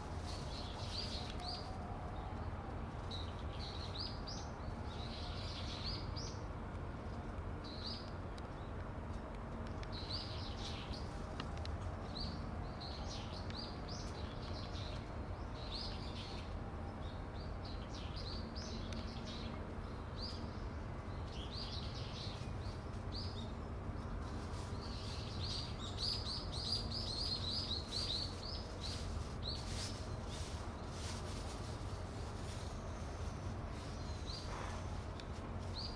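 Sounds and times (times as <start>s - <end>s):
small birds chirping: 0.0s - 1.8s, 9.5s - 11.4s, 12.0s - 35.9s.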